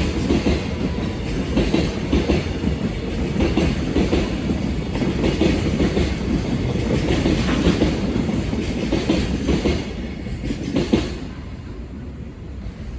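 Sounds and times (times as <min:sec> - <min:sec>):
train wheels clacking over rail joints: 0:00.0 - 0:11.3
train rumble: 0:00.0 - 0:12.9.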